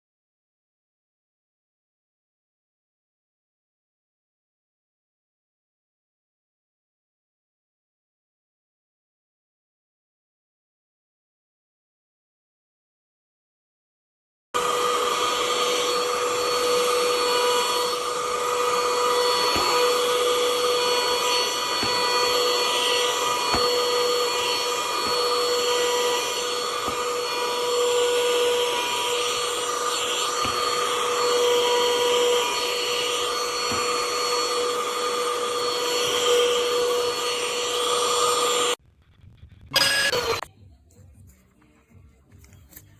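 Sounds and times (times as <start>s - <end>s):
handheld vacuum running: 14.6s - 38.8s, 39.7s - 40.5s.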